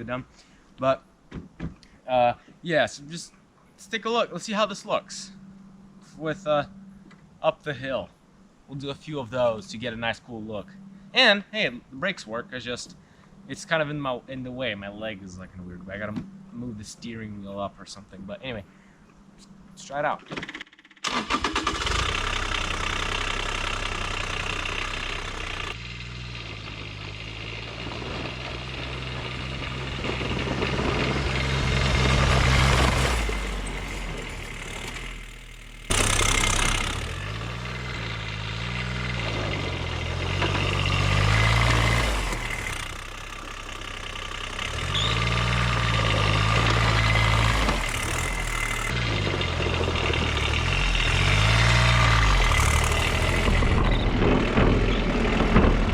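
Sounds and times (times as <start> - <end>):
small diesel engine revving: 21.0 - 55.9.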